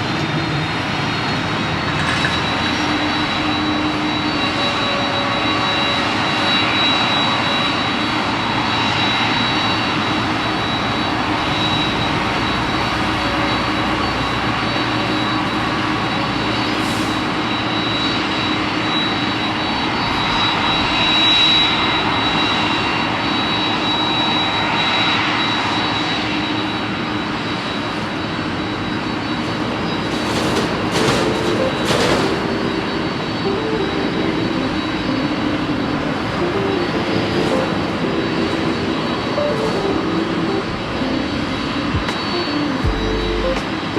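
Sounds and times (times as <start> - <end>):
high turbine whine: 0.0 - 43.9
jet engines running: 0.0 - 43.9.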